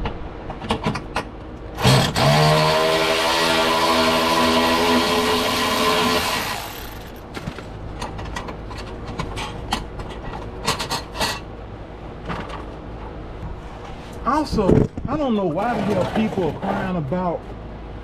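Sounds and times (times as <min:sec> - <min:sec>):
power tool motor running: 0:01.8 - 0:07.2
clicks and knocks of handled tools: 0:07.0 - 0:11.4.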